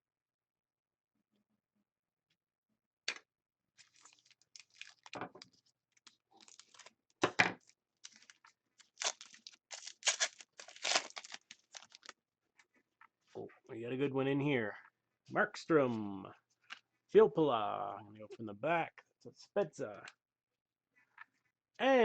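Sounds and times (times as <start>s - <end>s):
wrapper tearing and crinkling: 3.8s - 7.0s, 7.6s - 12.1s.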